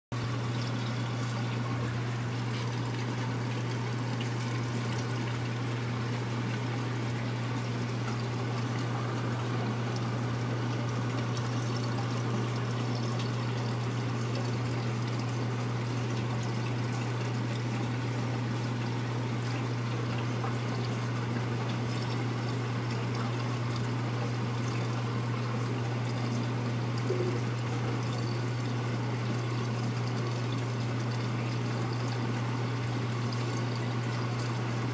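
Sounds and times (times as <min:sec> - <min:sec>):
steady low hum: 0:00.1 - 0:34.9.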